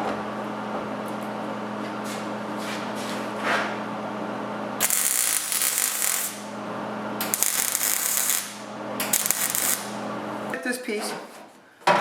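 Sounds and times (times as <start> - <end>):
steady low hum: 0.0 - 10.6
electric arc welder bursts: 4.8 - 6.6, 7.2 - 10.0.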